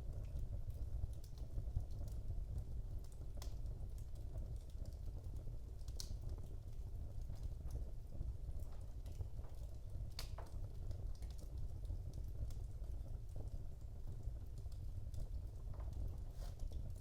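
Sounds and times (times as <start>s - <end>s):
burning logs crackling and popping: 0.0s - 17.0s
fire flames rumbling: 0.0s - 17.0s.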